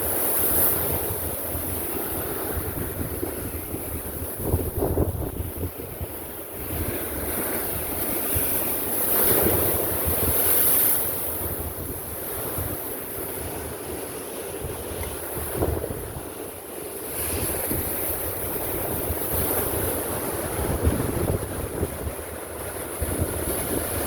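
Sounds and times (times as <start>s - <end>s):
waves breaking against cliff: 0.0s - 24.0s
wind buffeting microphone: 0.0s - 24.0s.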